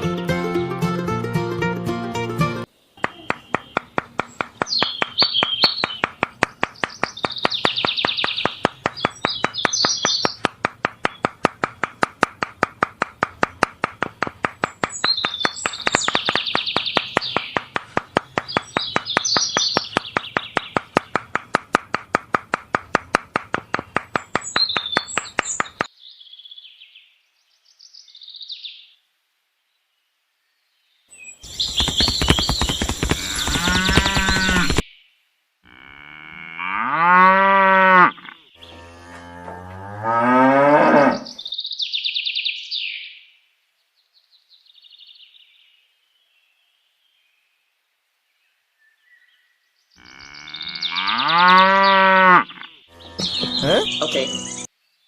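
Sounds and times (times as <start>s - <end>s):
birds chirping: 2.8s - 28.9s, 30.9s - 35.1s, 35.7s - 43.2s, 48.8s - 55.0s
steady rapid clicking: 3.5s - 25.9s, 31.5s - 34.8s
cow mooing: 35.7s - 41.4s, 50.0s - 53.6s.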